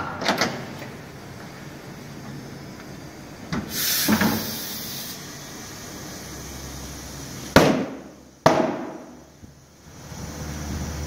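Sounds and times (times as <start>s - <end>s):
compressed air hiss: 3.6s - 7.5s
loud sharp clack: 7.6s - 9.1s.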